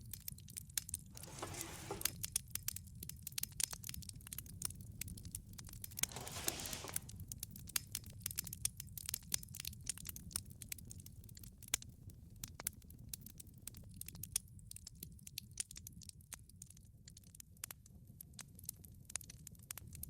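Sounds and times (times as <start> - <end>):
wood fire popping and snapping: 2.0 - 20.0
fire hissing: 6.0 - 7.2.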